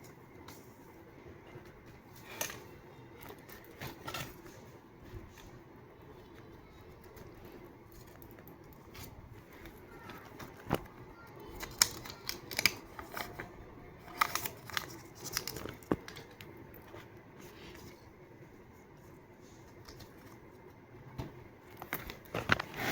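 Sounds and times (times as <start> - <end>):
paper handling: 6.6 - 20.7
scissors snipping paper: 11.4 - 13.4, 14.1 - 16.6.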